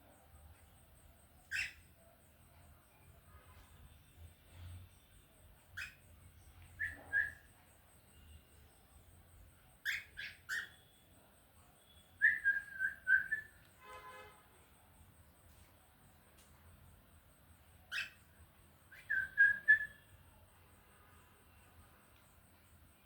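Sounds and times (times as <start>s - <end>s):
cockatiel chirping: 1.5s - 1.8s, 5.8s - 6.0s, 6.8s - 7.5s, 9.8s - 10.8s, 17.9s - 18.3s, 18.9s - 20.0s.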